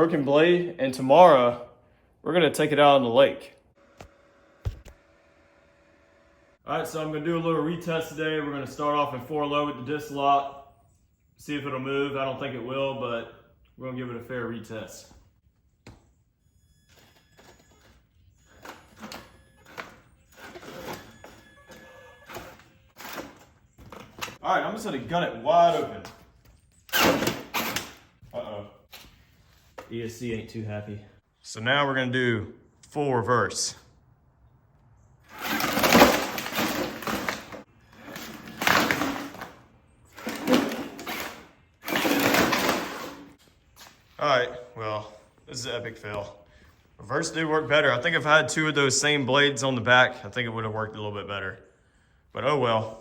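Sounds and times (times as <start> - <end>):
faint electric motor whine: 3.8 - 6.6
plastic blades scraping ground: 35.3 - 43.4.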